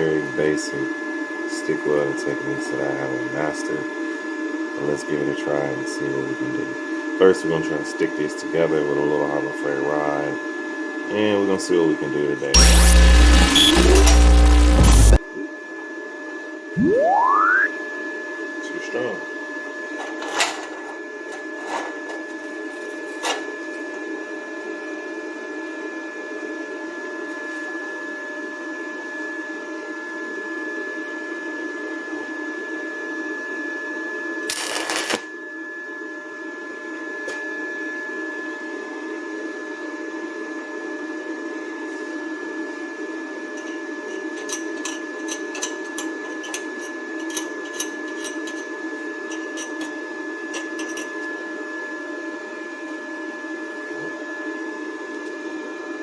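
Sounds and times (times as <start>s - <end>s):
welding machine fan and whine: 12.5s - 15.2s, 19.8s - 27.7s, 34.2s - 35.7s, 38.8s - 56.0s
loud burst: 12.6s - 15.2s
welding arc crackling: 12.6s - 15.2s, 34.5s - 35.3s.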